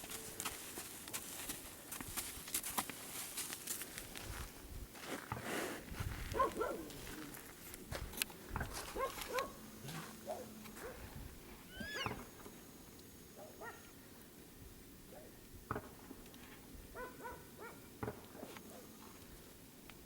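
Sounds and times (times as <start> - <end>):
animal calls and chirps: 11.7 - 12.3.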